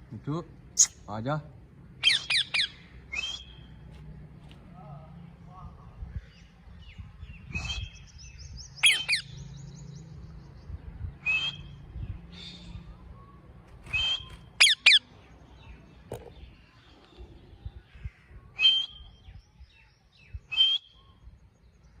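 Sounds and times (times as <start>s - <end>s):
parakeet calling: 2.0s - 3.6s, 8.8s - 9.4s, 14.0s - 15.1s.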